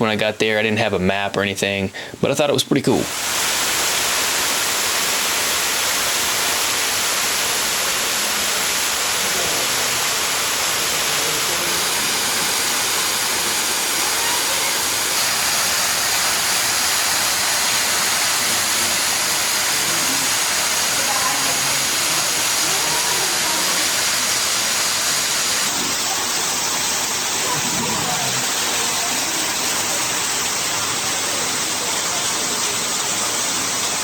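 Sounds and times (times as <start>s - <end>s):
waterfall rushing: 3.0s - 34.0s.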